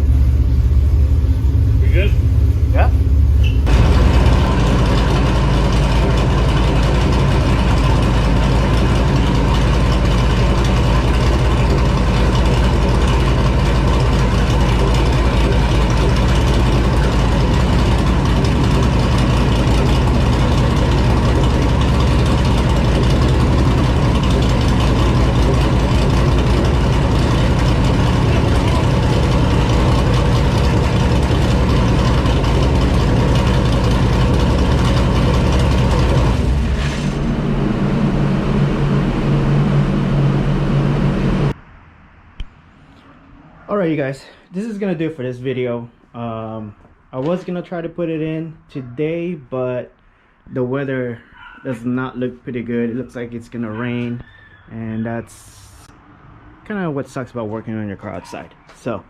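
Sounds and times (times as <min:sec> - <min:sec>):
engine running steadily: 0:00.0 - 0:41.6.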